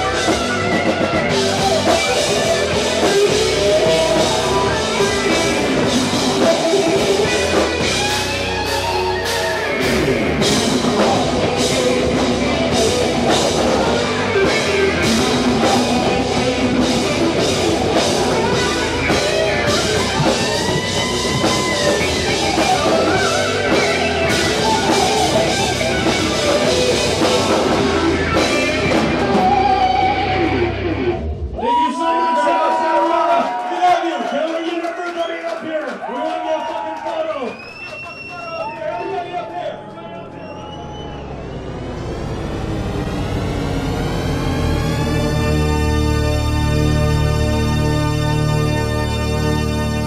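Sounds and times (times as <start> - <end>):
drum kit with cymbal hits: 0.0 - 31.6
electric guitar: 0.0 - 31.6, 41.4 - 50.0.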